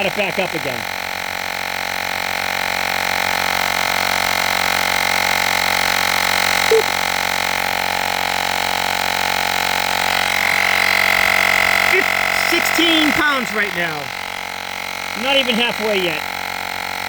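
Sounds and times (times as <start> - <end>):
tire inflator pump humming: 0.0 - 17.0.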